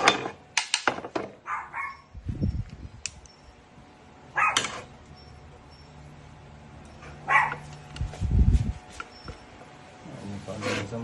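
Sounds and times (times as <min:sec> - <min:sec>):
dog barking: 0:01.4 - 0:02.1, 0:04.3 - 0:04.8, 0:07.0 - 0:07.7.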